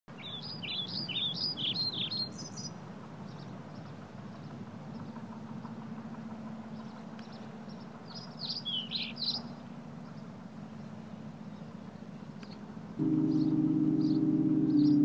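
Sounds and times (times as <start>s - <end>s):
birds chirping: 0.1s - 15.0s
steady low hum: 9.4s - 15.0s.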